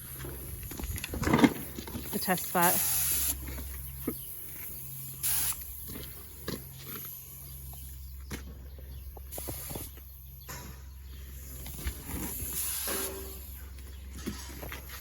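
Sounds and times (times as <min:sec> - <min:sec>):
air compressor humming: 0:00.0 - 0:15.0
paint spray gun hissing: 0:02.1 - 0:03.4, 0:04.2 - 0:06.0, 0:09.3 - 0:10.2, 0:12.3 - 0:13.6.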